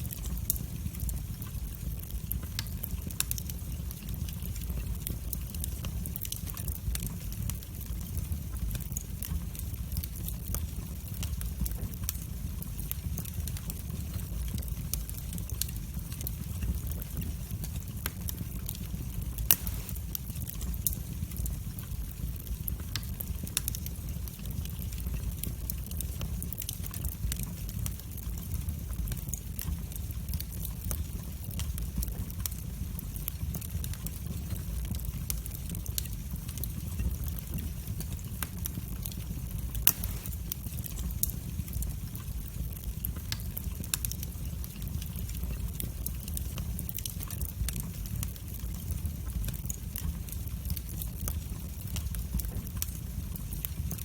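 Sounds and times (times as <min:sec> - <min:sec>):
fire crackling: 0:00.0 - 0:54.0
fire flames rumbling: 0:00.0 - 0:54.0
sharp fire pops: 0:11.2 - 0:27.7, 0:33.2 - 0:41.8.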